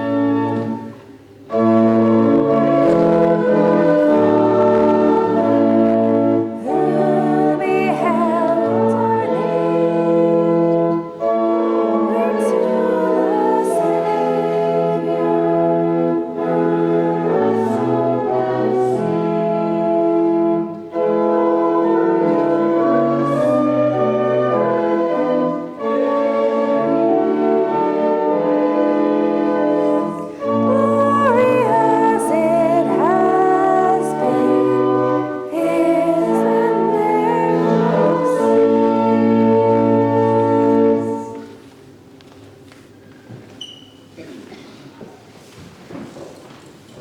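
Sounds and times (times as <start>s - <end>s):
church organ chords: 0.0s - 42.1s
voices singing: 2.5s - 11.3s, 11.9s - 20.4s, 27.2s - 41.6s.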